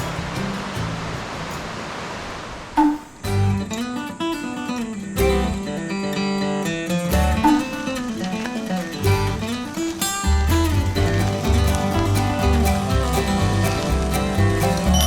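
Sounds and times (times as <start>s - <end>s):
acoustic guitar tune with bass: 0.0s - 15.0s
rushing noise: 7.2s - 15.0s.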